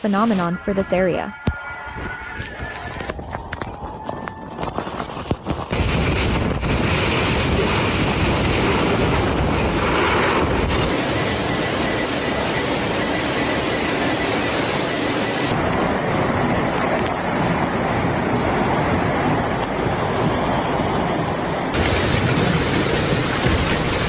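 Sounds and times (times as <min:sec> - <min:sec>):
storm rushing noise: 0:01.8 - 0:24.0.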